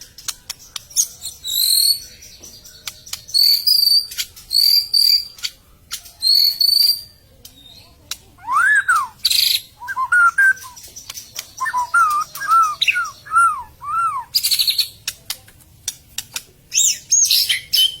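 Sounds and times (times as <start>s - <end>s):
bird singing varied whistles: 3.2s - 5.4s, 6.2s - 7.1s, 8.4s - 10.8s, 11.6s - 14.9s.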